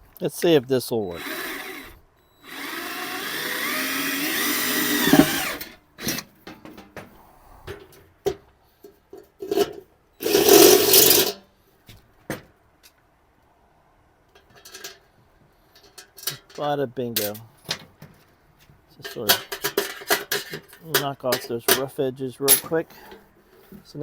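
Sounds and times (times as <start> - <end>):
power drill cutting steel: 1.0 - 6.2, 10.2 - 11.3.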